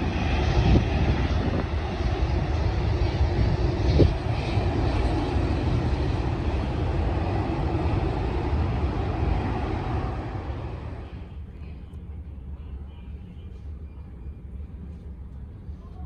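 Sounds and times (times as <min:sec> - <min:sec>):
jet engines roaring: 0:00.0 - 0:11.4.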